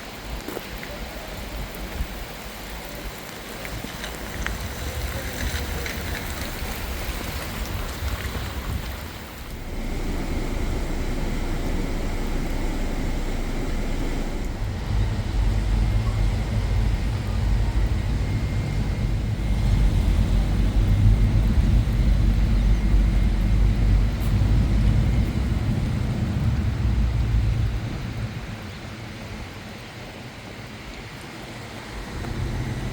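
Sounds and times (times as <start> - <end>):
car engine rumbling: 4.2 - 29.8.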